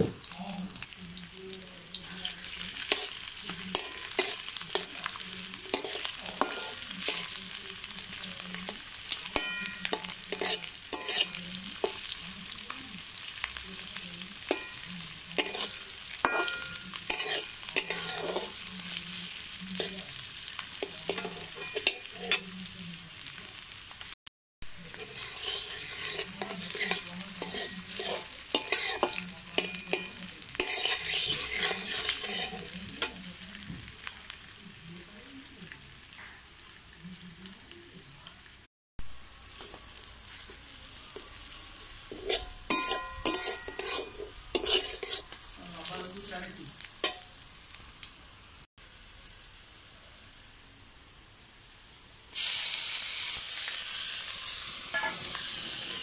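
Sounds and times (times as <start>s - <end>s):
onions sizzling in hot oil: 0.0s - 56.0s
wooden spatula scraping metal pan: 15.4s - 18.6s, 24.8s - 32.7s, 42.1s - 45.4s.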